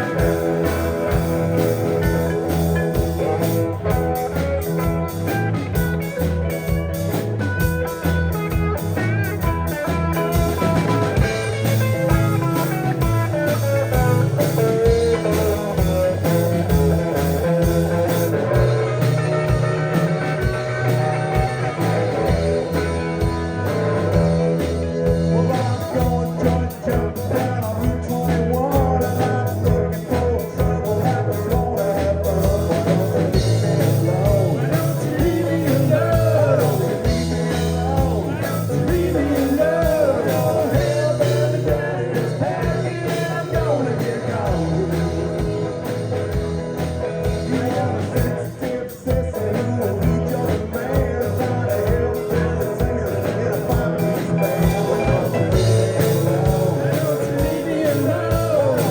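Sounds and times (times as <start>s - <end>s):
lead guitar bending notes: 0.0s - 27.2s, 52.0s - 58.9s
instrumental rock band: 0.0s - 58.9s.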